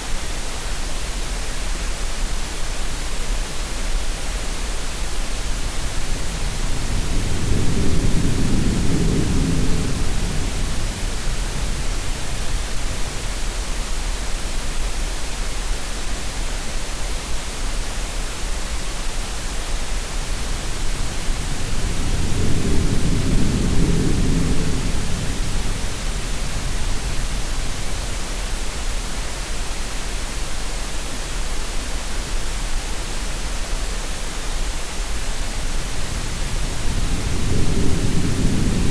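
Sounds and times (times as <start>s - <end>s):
steady noise hiss: 0.0s - 38.9s
surf swells: 19.8s - 30.4s, 33.9s - 38.9s.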